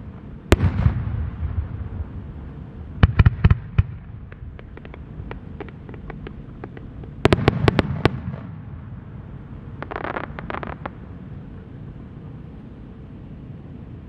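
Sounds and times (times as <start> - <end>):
fireworks crackling pops: 0.0 - 8.8, 9.7 - 11.0
low background noise: 0.0 - 14.0
fireworks bangs: 0.5 - 2.3, 3.0 - 9.1, 9.8 - 11.0.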